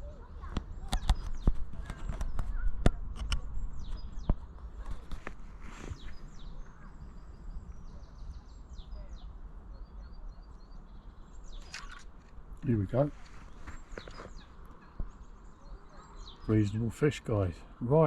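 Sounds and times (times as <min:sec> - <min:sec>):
small birds chirping: 0:00.0 - 0:18.0
sharp clicks: 0:00.5 - 0:03.5.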